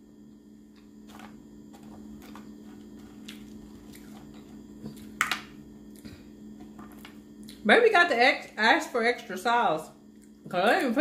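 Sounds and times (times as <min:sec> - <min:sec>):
person chewing fries: 0:02.1 - 0:05.2.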